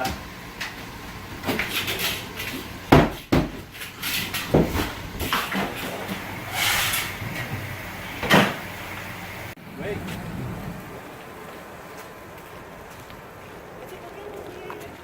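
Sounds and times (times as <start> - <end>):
wooden cabinetry knocking and banging: 1.3 - 6.3.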